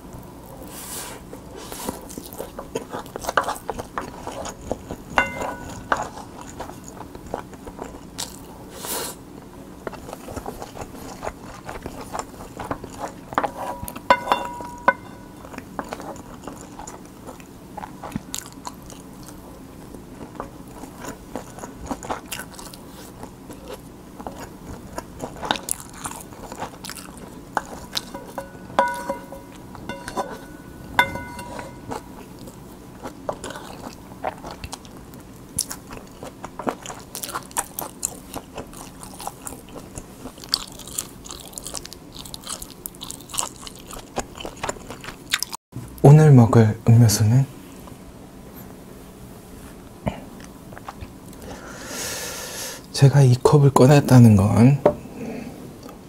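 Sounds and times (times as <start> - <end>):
close chewing with wet clicks: 1.9 - 8.6, 9.8 - 14.1, 15.5 - 28.2, 31.8 - 45.6
wooden spoon scraping bowl: 13.4 - 15.4, 28.0 - 31.9.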